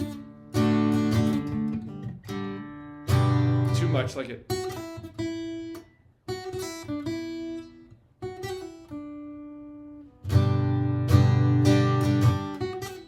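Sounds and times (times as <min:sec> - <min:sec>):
acoustic guitar picked chords: 0:00.0 - 0:13.0
acoustic guitar strummed chords: 0:00.0 - 0:13.0.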